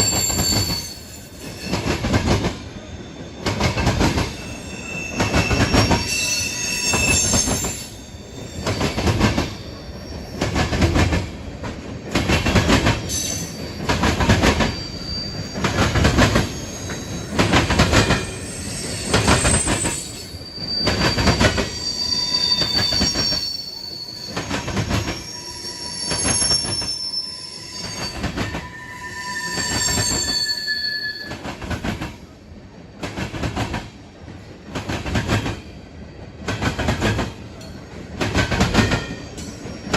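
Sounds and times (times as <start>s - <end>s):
high-pitched wheel squeal: 0.0s - 1.8s, 4.2s - 10.6s, 14.5s - 31.5s.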